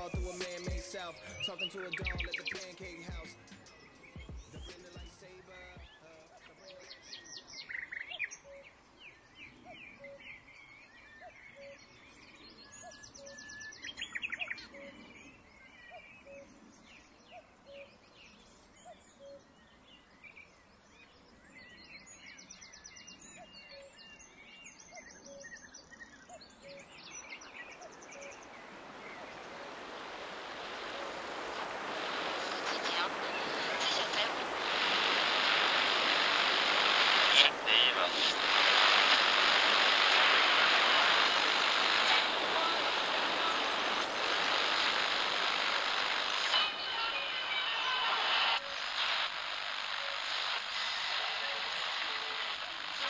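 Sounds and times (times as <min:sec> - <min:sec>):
birds chirping and trilling: 0:00.0 - 0:46.4
rushing noise: 0:27.8 - 0:53.0.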